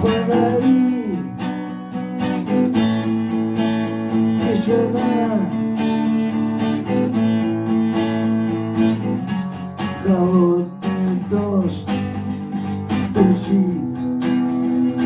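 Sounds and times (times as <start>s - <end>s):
person singing: 0.0s - 1.4s, 4.3s - 5.6s, 10.0s - 14.1s
acoustic guitar strumming chords: 0.0s - 15.0s.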